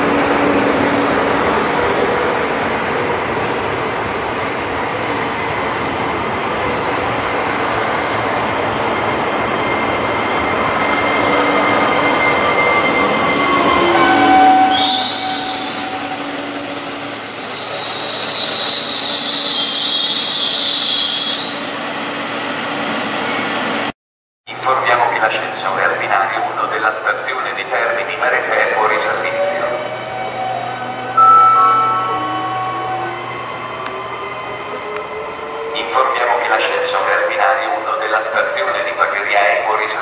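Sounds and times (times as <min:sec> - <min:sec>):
electric train running past: 0:00.0 - 0:23.9, 0:24.6 - 0:39.4
high-pitched wheel squeal: 0:10.4 - 0:22.0.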